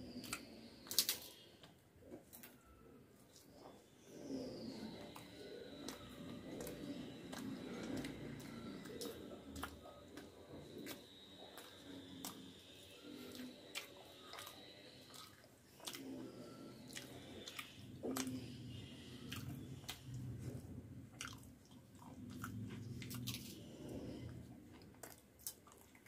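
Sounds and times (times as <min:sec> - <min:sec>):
person chewing with wet mouth clicks: 0:00.1 - 0:01.4, 0:04.5 - 0:20.4.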